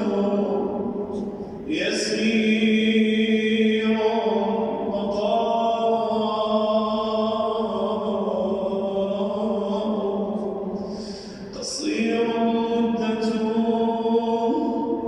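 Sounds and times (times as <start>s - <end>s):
person chanting melodically: 0.0s - 15.0s.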